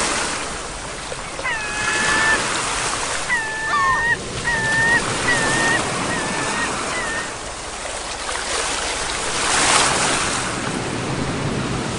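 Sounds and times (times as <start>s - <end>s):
ocean waves breaking on shore: 0.0s - 11.9s
short high calls: 3.3s - 7.3s.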